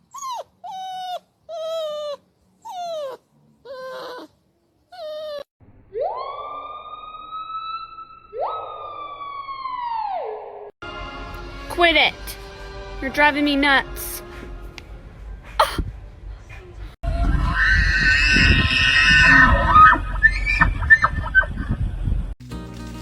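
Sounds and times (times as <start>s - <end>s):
dog whining and howling: 0.0s - 4.3s, 4.9s - 10.3s, 17.1s - 21.0s.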